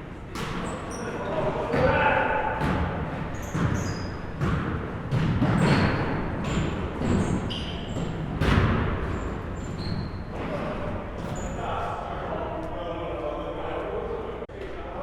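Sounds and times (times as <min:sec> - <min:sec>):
sneakers squeaking on court: 0:00.3 - 0:01.8, 0:02.6 - 0:11.7
basketball bouncing on floor: 0:02.6 - 0:09.3.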